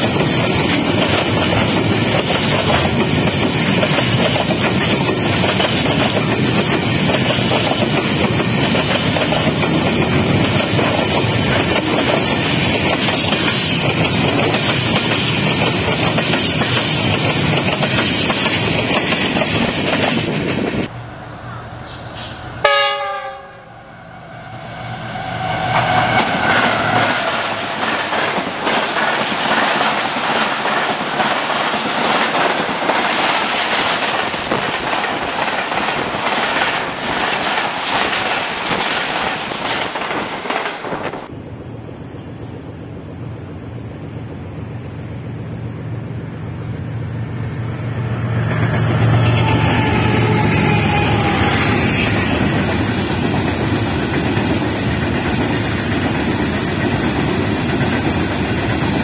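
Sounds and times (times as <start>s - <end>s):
train passing with wheel clatter: 0.0s - 59.0s
locomotive horn: 21.6s - 27.5s, 49.2s - 52.4s.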